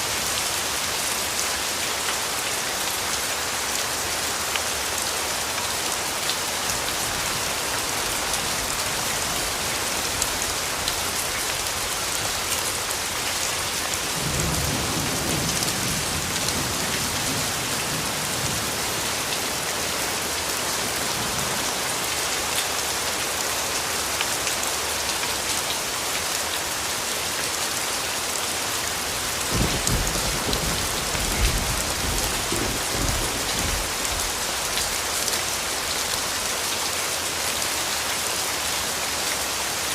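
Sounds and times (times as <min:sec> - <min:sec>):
steady rain falling: 0:00.0 - 0:39.9
distant thunder rumbling: 0:29.5 - 0:34.2.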